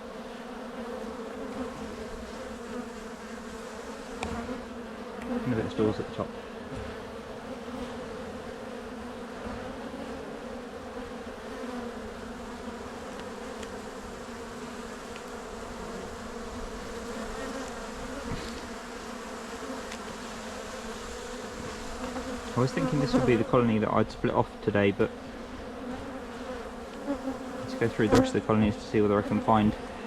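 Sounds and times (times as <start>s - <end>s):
bees buzzing: 0.0s - 30.0s
faint ticks: 13.1s - 13.8s, 15.1s - 15.4s.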